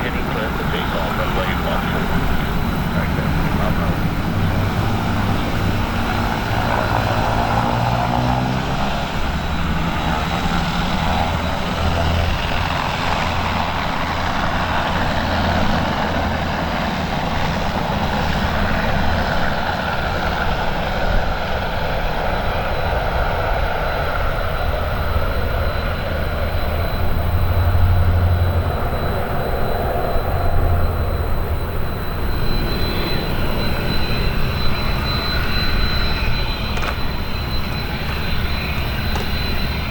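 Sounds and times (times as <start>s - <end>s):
high whine: 0.0s - 15.1s, 24.1s - 39.9s
turboprop engines droning: 0.0s - 39.9s.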